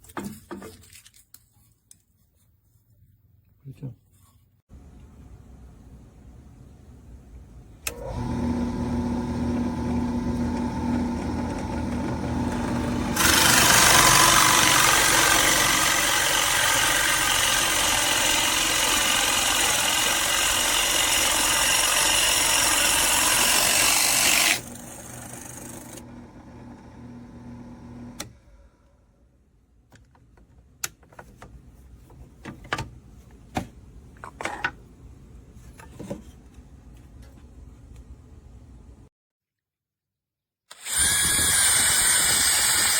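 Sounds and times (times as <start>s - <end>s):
power drill boring into wood: 8.1s - 26.1s, 40.7s - 42.9s
drill spinning free: 12.4s - 26.1s, 40.7s - 42.9s.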